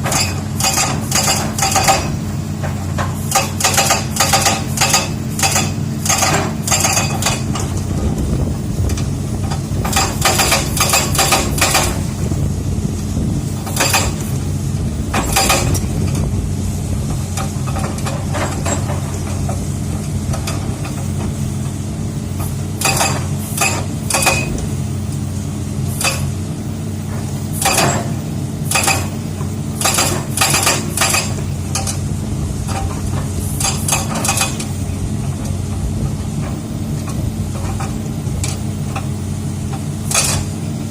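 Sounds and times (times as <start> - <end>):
rock breaker hammering: 0.0 - 7.9, 9.4 - 12.2, 13.6 - 14.4, 15.1 - 16.3, 22.4 - 24.7, 27.1 - 32.0, 32.6 - 35.5
diesel engine running: 0.0 - 40.9.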